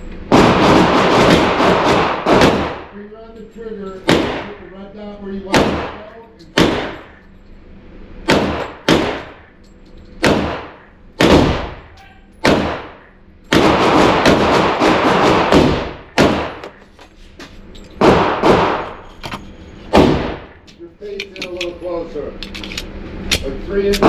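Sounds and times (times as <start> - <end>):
gunshots ringing out: 0.3 - 3.0, 4.0 - 4.7, 5.4 - 7.2, 8.2 - 9.5, 10.2 - 16.8, 18.0 - 19.0, 19.9 - 20.6.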